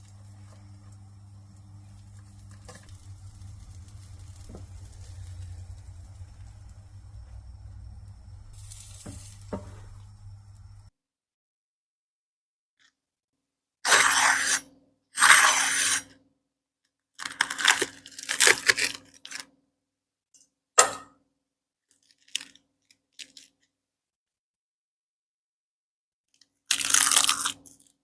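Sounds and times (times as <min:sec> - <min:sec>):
pancake crunching: 0:26.7 - 0:27.7.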